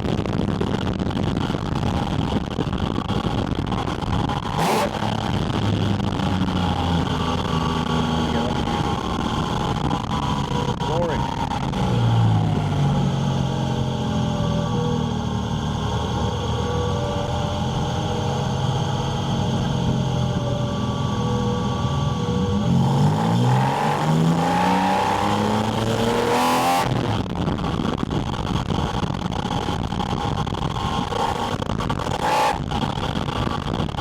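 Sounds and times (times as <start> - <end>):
car engine revving hard: 2.4 - 34.0.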